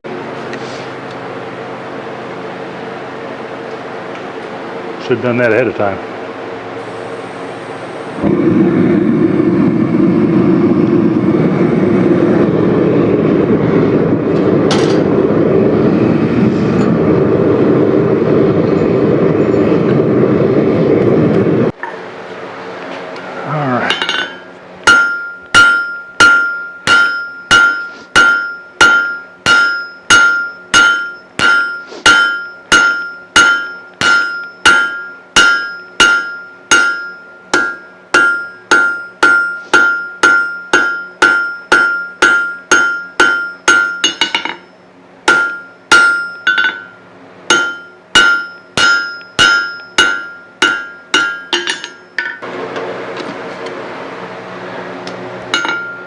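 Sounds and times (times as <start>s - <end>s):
low hum: 0.9s - 56.0s
hammer striking steel on anvil: 23.9s - 52.5s, 55.5s - 56.0s.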